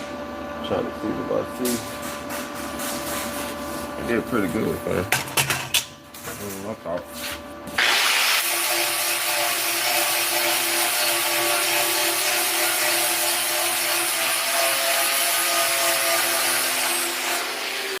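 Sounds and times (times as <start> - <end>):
angle grinder grinding steel: 7.8 - 18.0.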